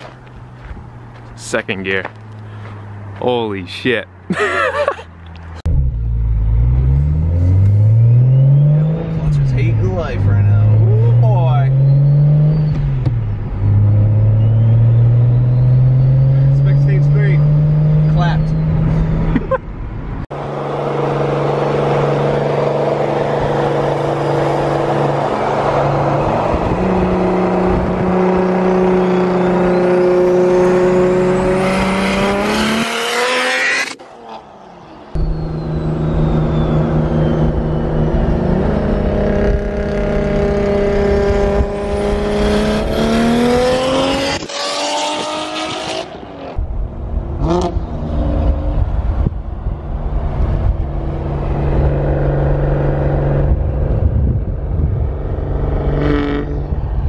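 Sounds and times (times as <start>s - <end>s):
car engine revving: 5.2s - 57.0s.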